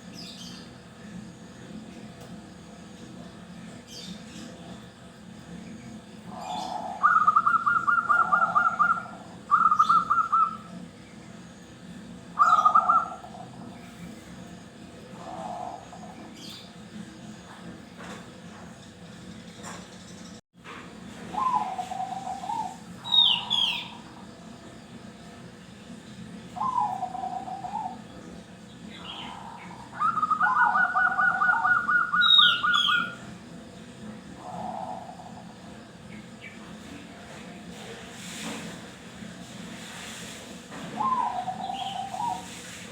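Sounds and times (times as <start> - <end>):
doves cooing trilled notes: 2.6 - 18.3, 21.2 - 24.7, 26.3 - 36.8, 40.8 - 42.9.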